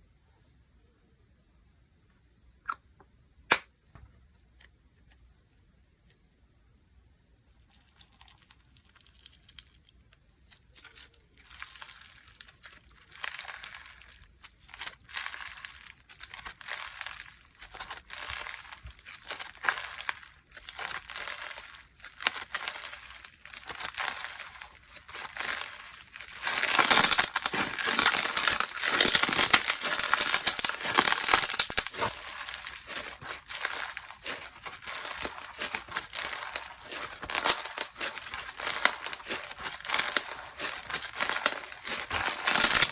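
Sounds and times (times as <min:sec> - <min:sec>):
slime squished by hand: 0:11.0 - 0:42.9.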